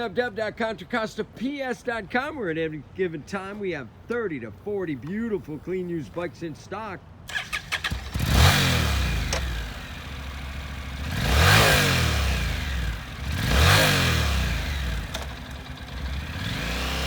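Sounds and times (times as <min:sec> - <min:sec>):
motorcycle engine revving: 0:07.3 - 0:17.0.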